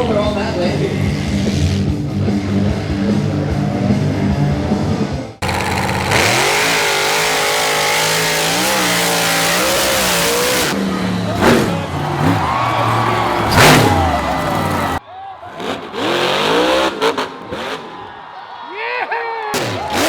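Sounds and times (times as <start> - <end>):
toy truck engine revving: 5.4 - 15.0, 15.6 - 17.8.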